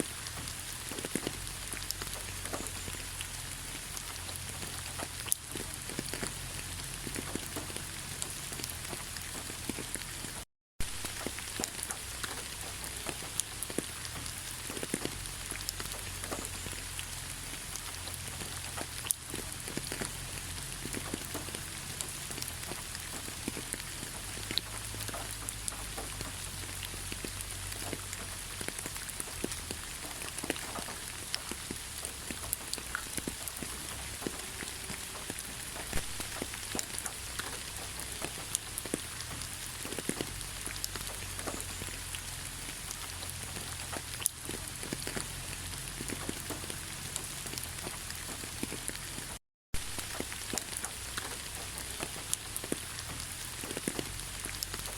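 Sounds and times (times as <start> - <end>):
steady rain: 0.0 - 54.9.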